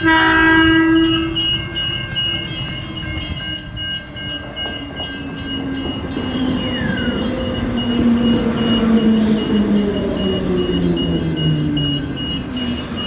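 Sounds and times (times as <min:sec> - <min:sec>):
crossing warning bells ringing: 0:00.0 - 0:13.0
train passing: 0:00.0 - 0:13.0
falling squeal: 0:06.1 - 0:13.0.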